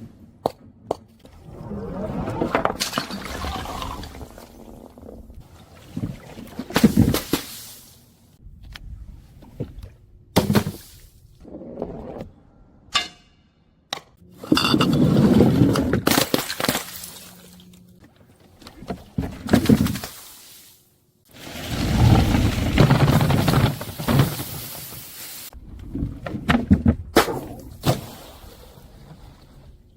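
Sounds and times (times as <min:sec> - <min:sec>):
glass bottles breaking and crushing: 0:15.9 - 0:17.3.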